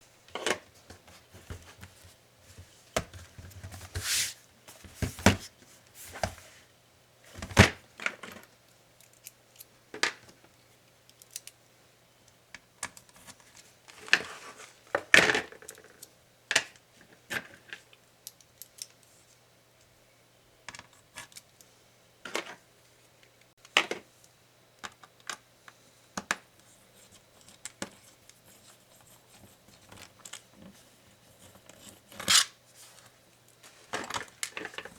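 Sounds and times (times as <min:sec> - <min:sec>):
laptop and tools clicking and scraping: 0:26.2 - 0:34.9.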